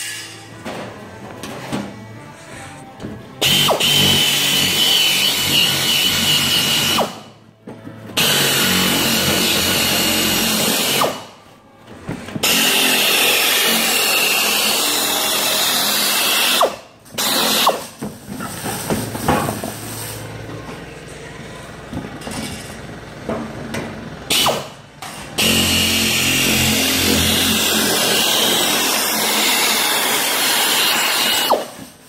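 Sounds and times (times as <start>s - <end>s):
air nibbler cutting sheet metal: 0.0s - 0.5s, 3.4s - 7.3s, 8.2s - 11.3s, 12.4s - 18.0s, 24.3s - 31.9s.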